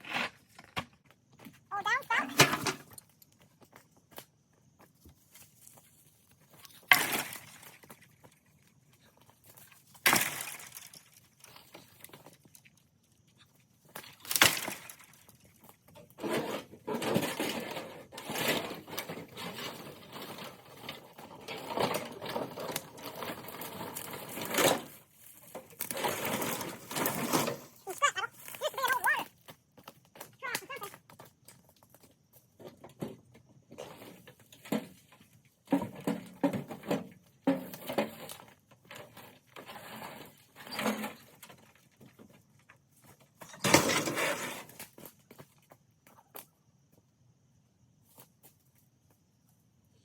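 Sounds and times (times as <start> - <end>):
junk dragged through dry brush: 16.2 - 29.2, 43.4 - 44.8.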